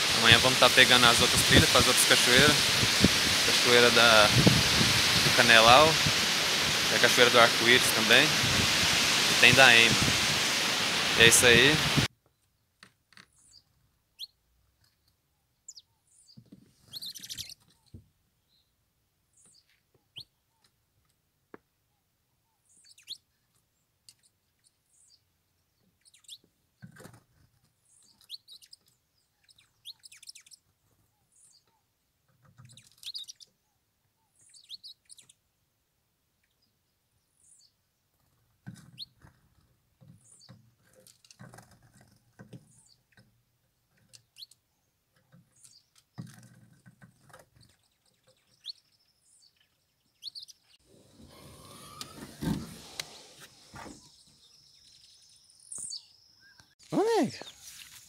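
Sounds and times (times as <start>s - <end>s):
finches chirping: 15.7s - 17.9s, 47.7s - 50.8s, 52.9s - 56.8s.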